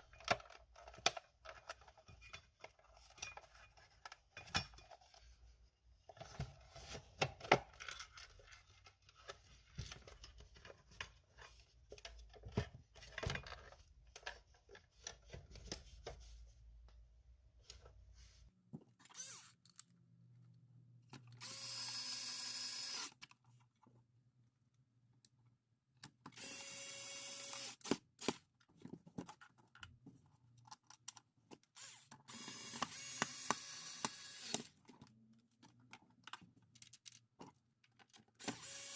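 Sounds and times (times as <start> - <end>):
small electric motor running: 21.4 - 23.1, 31.8 - 34.7, 38.4 - 38.9.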